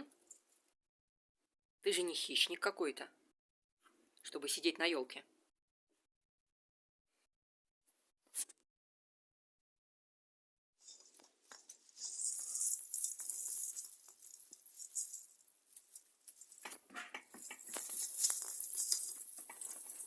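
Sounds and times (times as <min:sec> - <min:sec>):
ornaments clicking: 0:10.9 - 0:20.0
tree branches rustling: 0:10.9 - 0:20.0.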